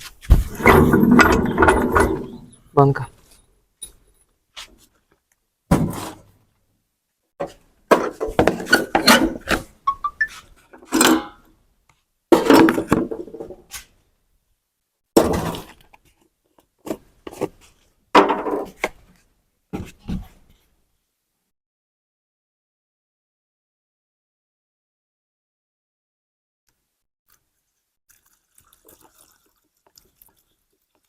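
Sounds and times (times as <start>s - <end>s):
metal tools clanking and knocking: 0.4s - 2.7s, 8.0s - 11.5s.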